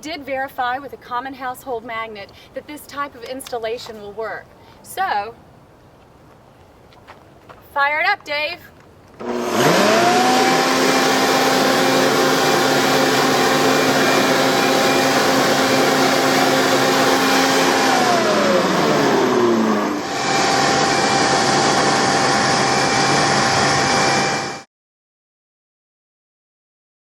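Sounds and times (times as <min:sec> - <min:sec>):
rushing air: 0:09.2 - 0:24.6
blower motor whine: 0:09.2 - 0:24.7.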